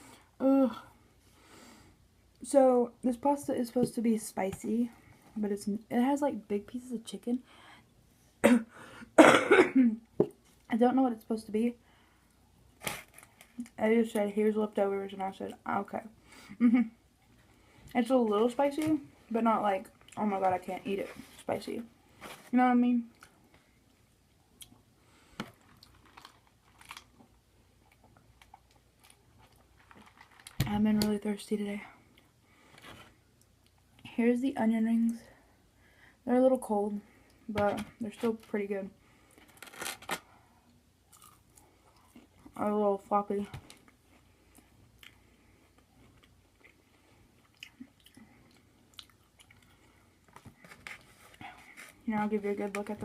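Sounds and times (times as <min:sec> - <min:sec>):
mouth chewing food: 0:41.1 - 0:42.6, 0:43.8 - 0:50.0.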